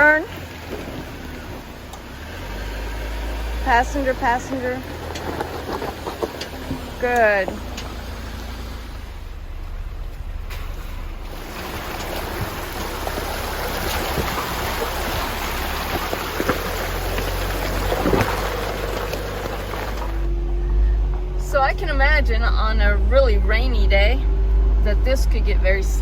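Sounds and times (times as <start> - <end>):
tyres crunching on gravel: 0.0 - 20.5
low engine rumble: 0.0 - 26.0
stones clicking and knocking: 13.9 - 20.3.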